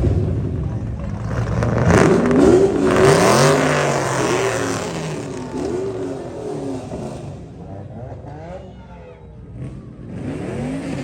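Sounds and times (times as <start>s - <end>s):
car engine revving: 0.0s - 8.6s, 9.4s - 11.0s.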